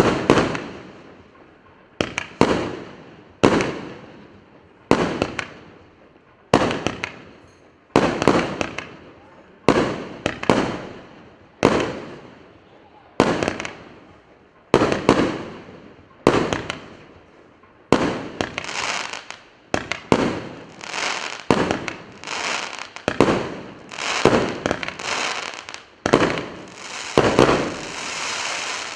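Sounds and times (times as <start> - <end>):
firework bangs: 0.0 - 12.6, 13.2 - 28.9
firework burst hissing: 20.7 - 28.9.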